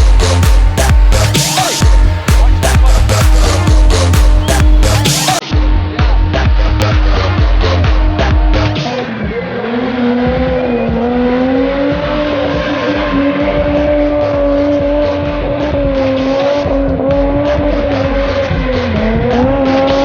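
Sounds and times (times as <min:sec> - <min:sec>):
tyres squealing: 0:00.0 - 0:05.4
car engine revving high: 0:00.0 - 0:20.0
music beat: 0:00.0 - 0:20.0.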